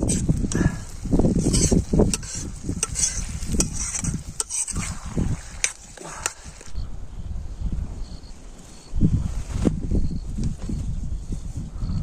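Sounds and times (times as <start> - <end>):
spoon scraping cooking pot: 1.3 - 6.7
low rumble: 6.7 - 8.4.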